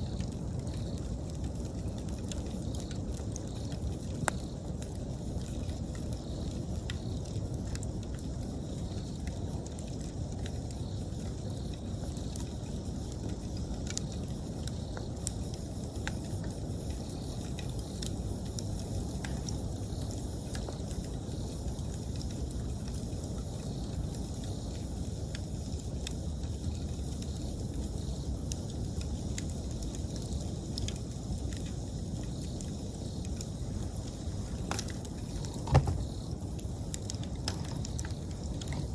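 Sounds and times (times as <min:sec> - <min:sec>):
campfire crackling and popping: 0:00.0 - 0:38.9
insects chirping: 0:00.0 - 0:38.9
low rumble of burning fire: 0:00.0 - 0:38.9.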